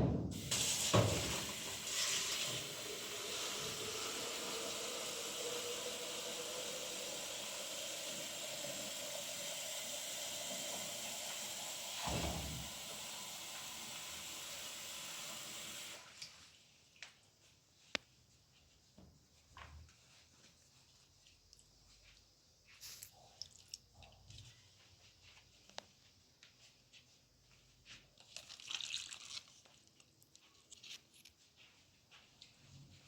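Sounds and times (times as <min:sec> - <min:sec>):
thump: 0:00.0 - 0:01.4, 0:12.0 - 0:12.7.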